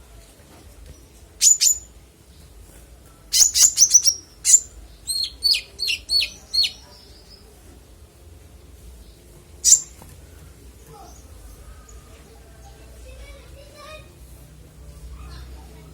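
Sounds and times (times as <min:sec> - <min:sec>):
sunbird chirping: 0:03.3 - 0:07.5, 0:09.6 - 0:10.0.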